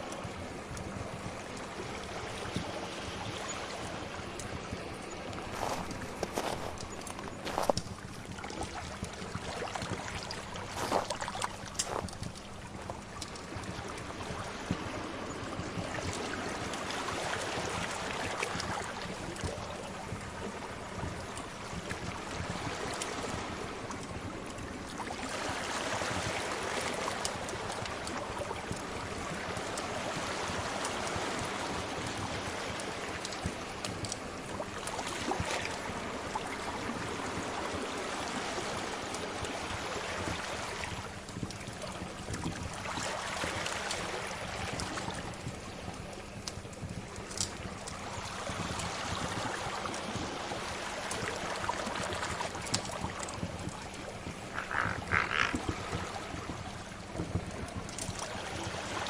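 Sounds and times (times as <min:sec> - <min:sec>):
sea waves washing: 0:00.0 - 0:59.0
wood fire crackling: 0:05.3 - 0:09.2, 0:10.0 - 0:13.5, 0:46.4 - 0:48.0.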